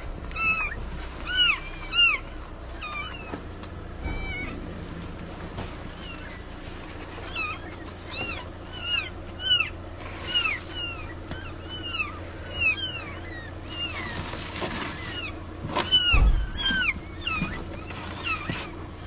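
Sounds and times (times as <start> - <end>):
steady low hum: 0.0 - 19.0
cat mewing: 0.3 - 4.8, 5.8 - 19.0.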